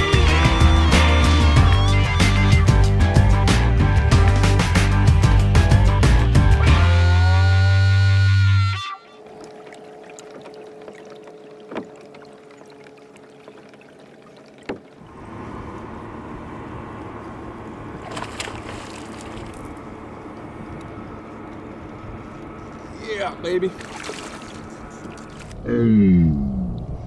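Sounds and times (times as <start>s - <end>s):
wind and water rushing: 9.1s - 25.6s.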